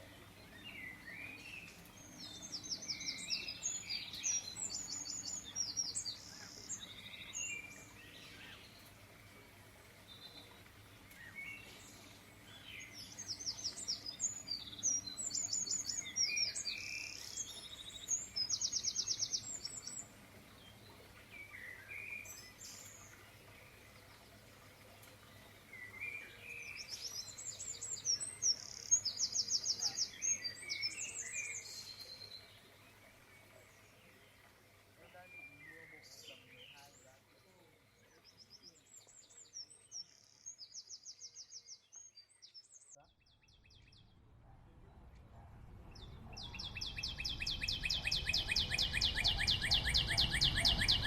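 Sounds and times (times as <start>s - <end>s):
songbird trilling and chirping: 0.0s - 9.0s, 11.1s - 23.3s, 25.6s - 34.4s, 45.9s - 51.0s.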